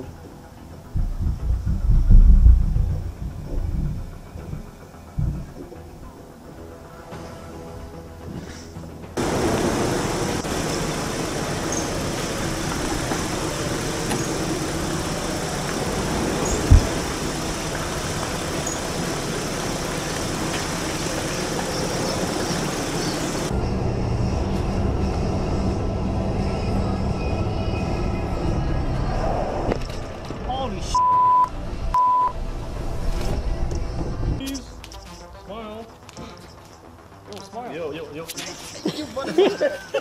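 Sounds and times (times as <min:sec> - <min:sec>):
vehicle and road noise: 0:00.0 - 0:40.0
dull low rumble: 0:00.7 - 0:06.3, 0:09.2 - 0:34.4
low thump: 0:16.6 - 0:17.2.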